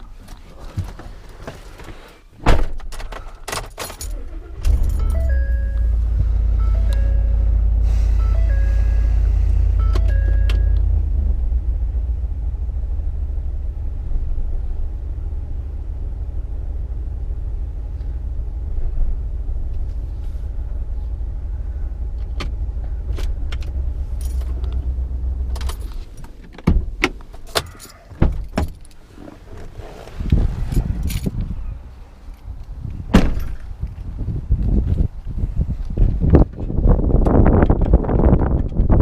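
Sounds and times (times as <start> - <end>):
clicks and knocks inside vehicle: 0.0 - 5.2, 22.2 - 31.5, 35.8 - 39.0
vehicle engine and road rumble: 0.0 - 39.0.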